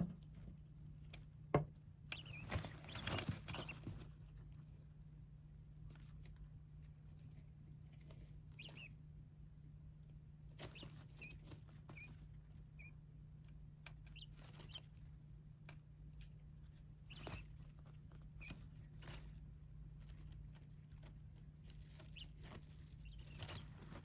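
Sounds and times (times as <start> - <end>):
small birds chirping: 0.8 - 24.0.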